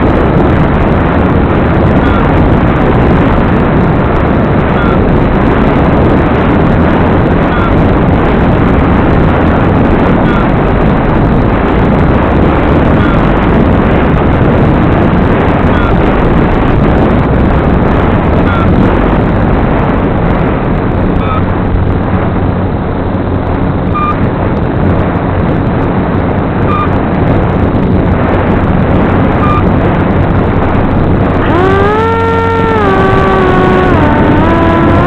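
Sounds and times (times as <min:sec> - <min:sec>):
wind rushing on microphone: 0:00.0 - 0:35.0
electric motor whine: 0:31.4 - 0:35.0.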